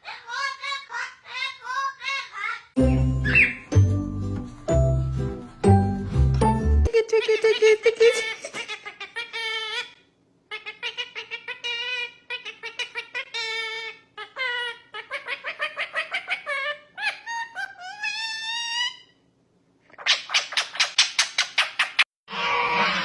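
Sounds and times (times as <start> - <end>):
pet bird chirping: 0.0 - 3.7.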